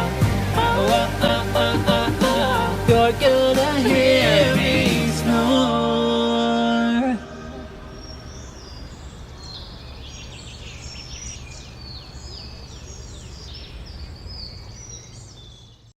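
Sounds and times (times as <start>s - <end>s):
birds chirping and whistling: 6.8s - 15.9s.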